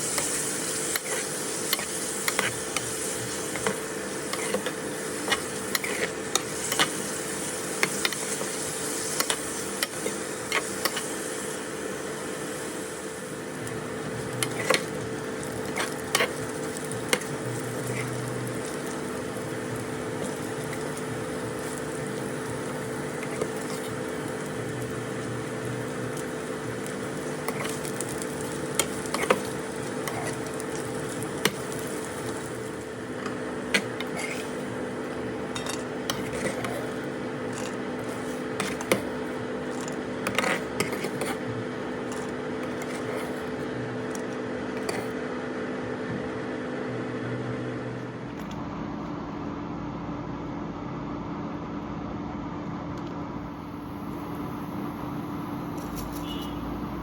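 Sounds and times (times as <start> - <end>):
food frying in a pan: 0.0 - 45.1
steady hum: 0.0 - 57.0.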